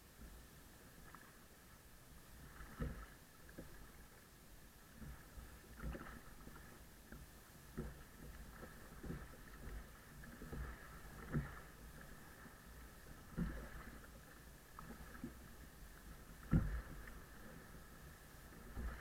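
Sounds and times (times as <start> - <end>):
water noise: 0.0 - 19.0
kayak thumps: 2.7 - 3.8, 16.4 - 17.2.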